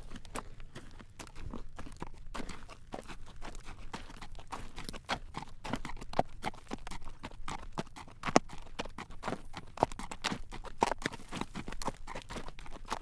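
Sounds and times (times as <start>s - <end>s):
horse hooves clip-clopping on road: 0.0s - 13.0s.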